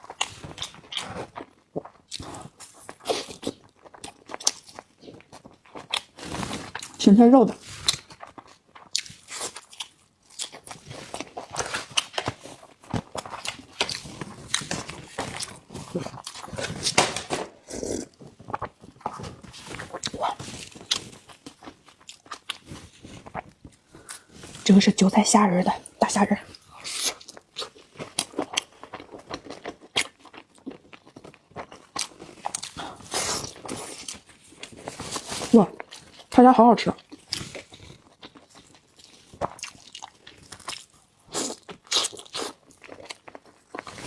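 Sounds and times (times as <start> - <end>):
person chewing food: 0.0 - 7.0, 7.7 - 24.6, 25.8 - 36.3, 37.0 - 44.0
chewing and mouth smacks: 37.0 - 44.0.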